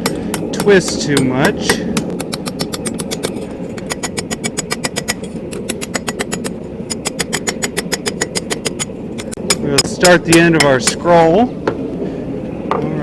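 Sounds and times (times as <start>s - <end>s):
hammer tapping on anvil: 0.0s - 11.0s
low hum: 0.0s - 13.0s.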